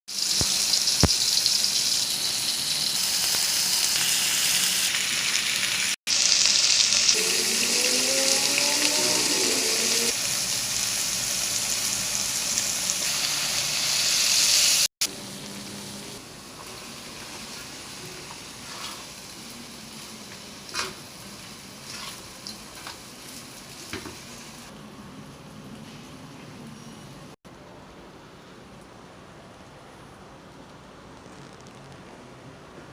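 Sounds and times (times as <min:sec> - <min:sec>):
noodles sizzling in hot oil: 0:00.1 - 0:24.7.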